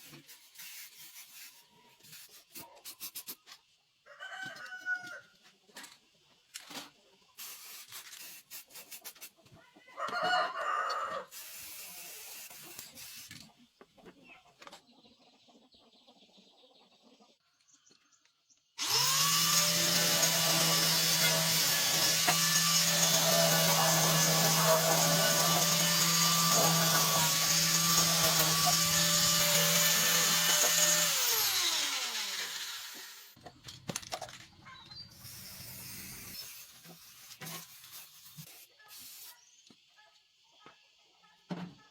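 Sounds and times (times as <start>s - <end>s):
rooster crowing: 4.1s - 5.3s, 9.9s - 11.3s
electric power tool running: 18.8s - 33.4s.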